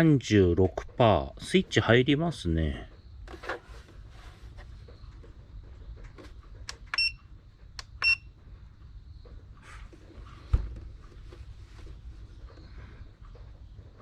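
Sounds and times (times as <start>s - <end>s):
dull thump: 10.4s - 10.9s.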